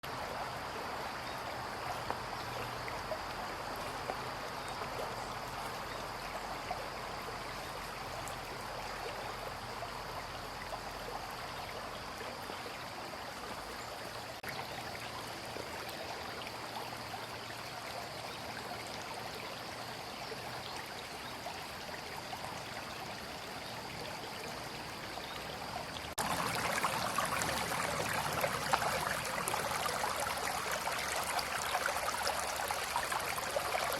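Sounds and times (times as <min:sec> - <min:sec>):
brook water running: 0:00.0 - 0:33.9
stream rushing: 0:25.6 - 0:33.9.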